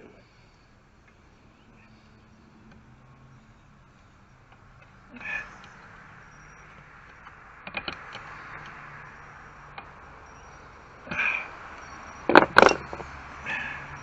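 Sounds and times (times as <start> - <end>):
loud sharp knocks: 12.3 - 13.0.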